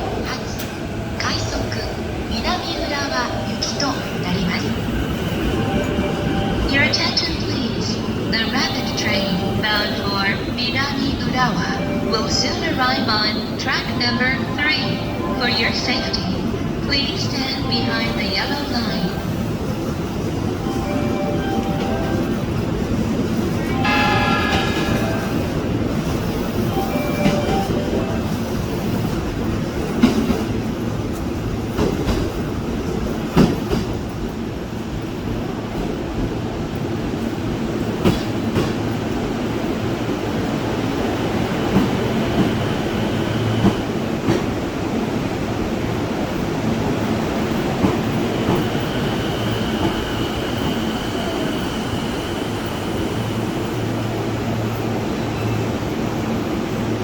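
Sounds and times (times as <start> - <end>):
train rumble: 0.0 - 57.0
train wheels clacking over rails: 28.8 - 34.6, 37.3 - 39.6.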